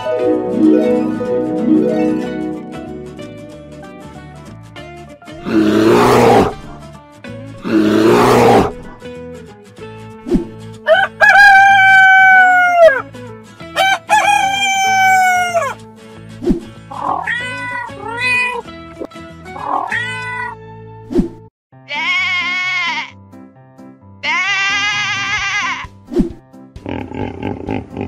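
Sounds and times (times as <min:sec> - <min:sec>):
background music: 0:00.0 - 0:28.0
loud rough roars: 0:05.4 - 0:06.6, 0:07.6 - 0:08.8
rooster crowing: 0:10.9 - 0:13.0, 0:13.8 - 0:15.8.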